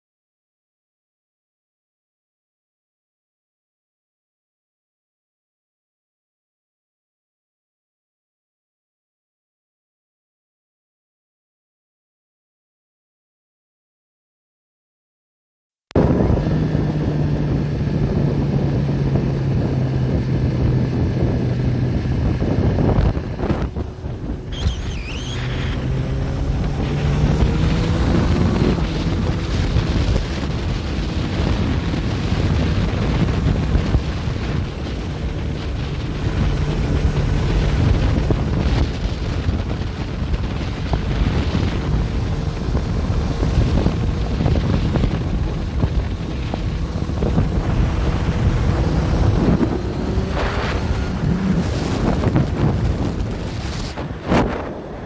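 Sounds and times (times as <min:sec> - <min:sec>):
vehicle engine hum: 0:16.0 - 0:55.0
wind buffeting microphone: 0:16.0 - 0:55.0.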